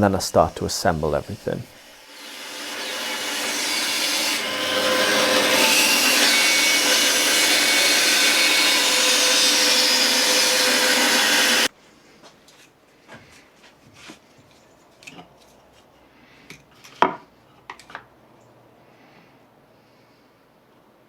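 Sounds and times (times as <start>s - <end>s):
power saw cutting wood: 0.0s - 11.7s.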